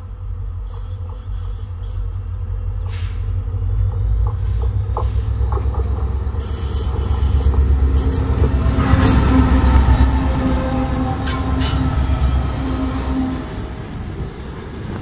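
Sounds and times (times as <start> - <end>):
train rumbling: 0.0 - 15.0
hiss: 0.6 - 3.4.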